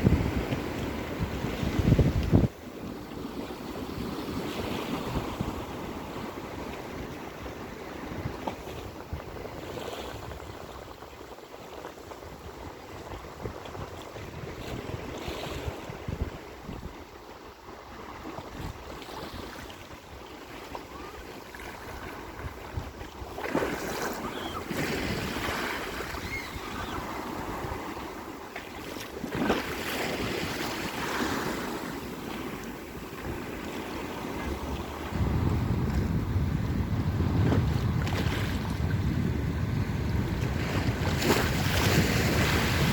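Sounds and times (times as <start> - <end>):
wind buffeting microphone: 0.0 - 42.9
sea waves washing: 18.4 - 42.9.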